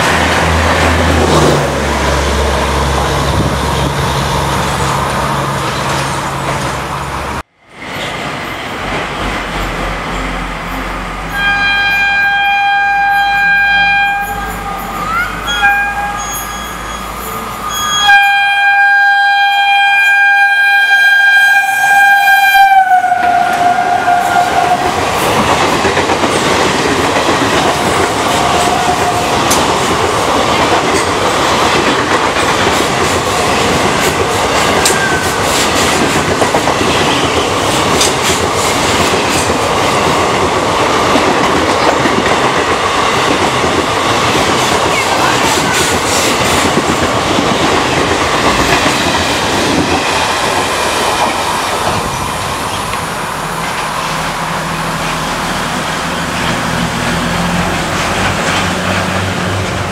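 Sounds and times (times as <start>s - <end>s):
locomotive horn: 10.9s - 25.0s
train wheels clickety-clack: 23.1s - 59.9s.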